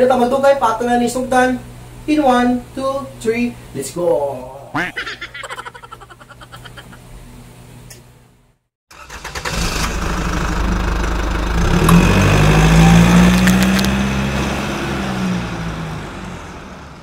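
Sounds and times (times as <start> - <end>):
car engine cranking and revving: 8.9 - 16.4.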